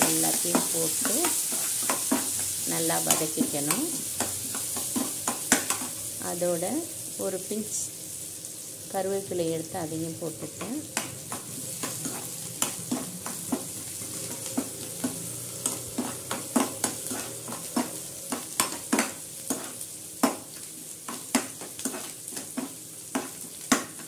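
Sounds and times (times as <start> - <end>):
vegetables sizzling in oil: 0.0 - 24.0
metal spoon scraping pan: 0.1 - 6.0, 10.6 - 19.8, 21.1 - 23.4.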